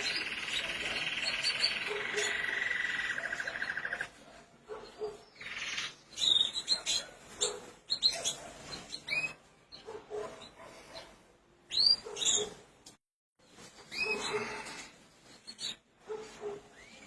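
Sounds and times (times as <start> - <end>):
canaries chirping: 0.0 - 12.8, 13.6 - 17.0.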